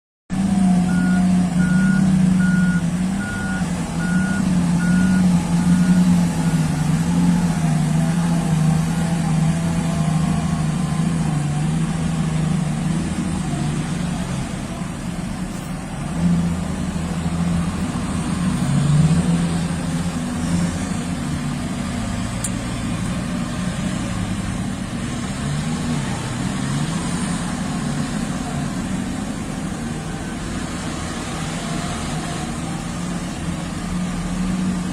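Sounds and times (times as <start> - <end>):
diesel truck engine running: 0.3 - 34.9
reversing alarm beeping: 0.8 - 7.0.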